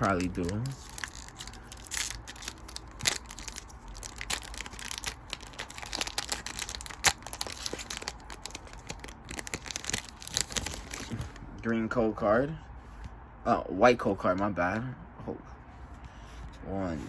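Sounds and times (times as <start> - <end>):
foil wrapper tearing and crinkling: 0.0 - 11.4.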